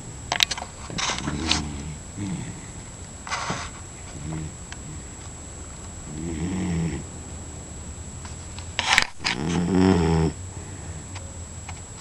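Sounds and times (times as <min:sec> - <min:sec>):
dog snoring: 0:00.9 - 0:05.2, 0:06.0 - 0:07.1, 0:09.2 - 0:10.8.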